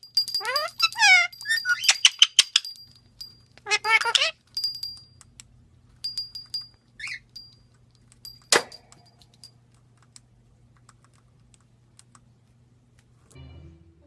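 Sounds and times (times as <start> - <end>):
small metal pieces clinking: 0.0 - 5.0.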